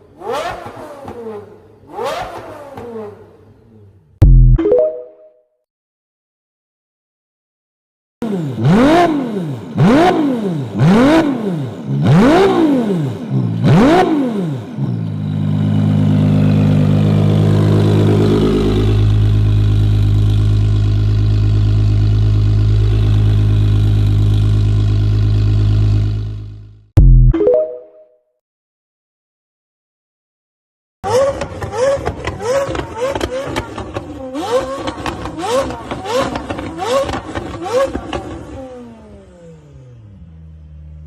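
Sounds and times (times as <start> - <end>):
engine revving: 0.1 - 4.6, 8.2 - 27.3, 31.0 - 41.0
engine idling: 15.3 - 26.8.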